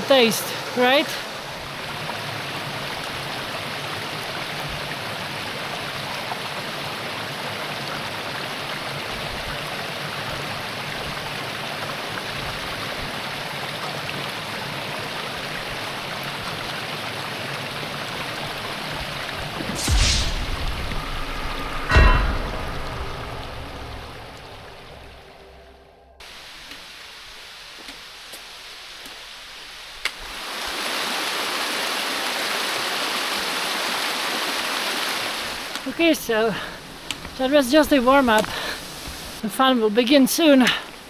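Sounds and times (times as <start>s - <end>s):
thump and rush: 19.4s - 26.2s
creek rushing over rocks: 30.2s - 39.4s.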